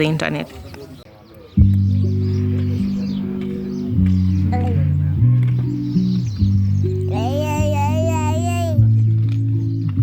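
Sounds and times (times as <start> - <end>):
low sustained chords: 1.6 - 8.1.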